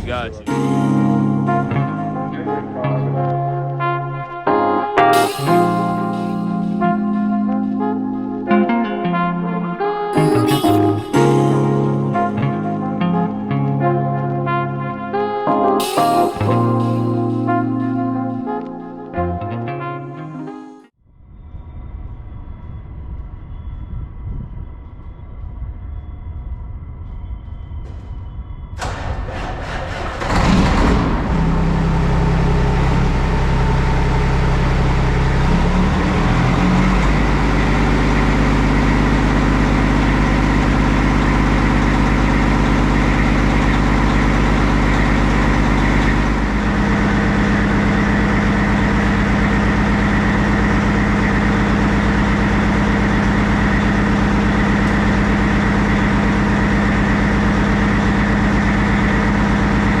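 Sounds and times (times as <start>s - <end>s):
diesel truck engine running: 0.0s - 2.9s, 28.8s - 60.0s.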